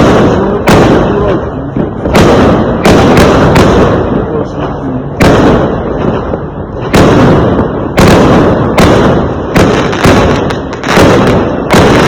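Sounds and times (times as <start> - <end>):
fireworks exploding with loud bangs: 0.0 - 12.0.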